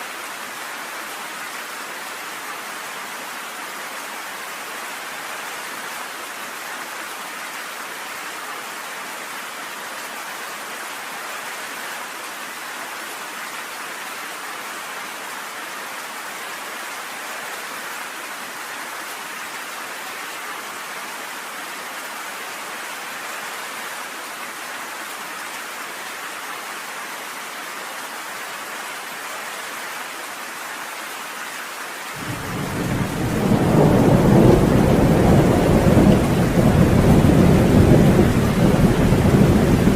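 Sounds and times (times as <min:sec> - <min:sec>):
rain on a porch: 0:00.0 - 0:39.9
thunder rumbling: 0:32.2 - 0:39.9.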